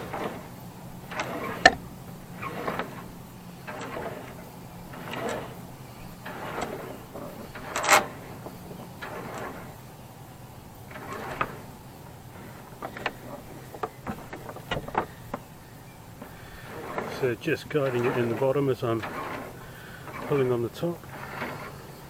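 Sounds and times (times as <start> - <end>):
short clicks and knocks: 0.0 - 9.8, 10.9 - 18.4
rope rasping through mast: 0.0 - 22.0.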